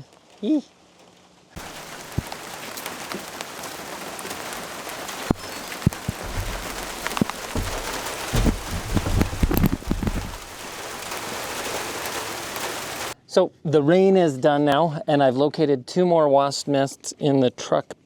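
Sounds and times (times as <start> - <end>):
rain falling: 1.6 - 13.2
low thuds: 4.5 - 11.2.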